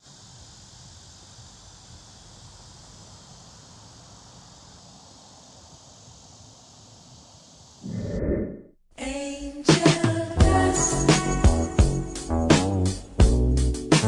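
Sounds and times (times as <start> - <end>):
insects chirring: 0.0 - 8.6.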